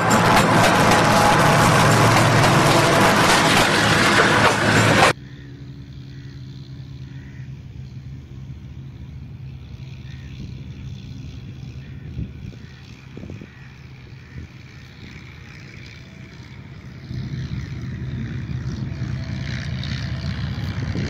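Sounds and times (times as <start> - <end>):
passenger train rushing past: 0.0 - 5.2, 14.6 - 21.0
low steady engine hum: 4.7 - 21.0.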